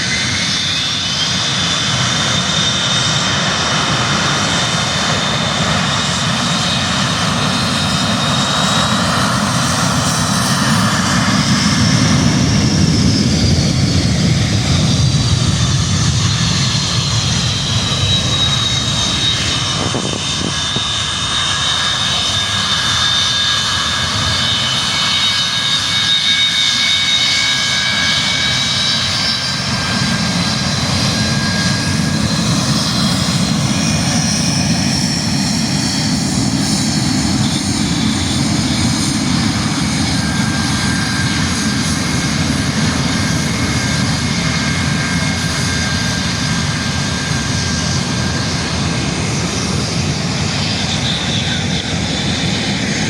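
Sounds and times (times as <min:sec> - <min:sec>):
jet engine roar: 0:00.0 - 0:53.0
jet engines whining: 0:00.0 - 0:53.0
deep rumble: 0:11.8 - 0:21.6.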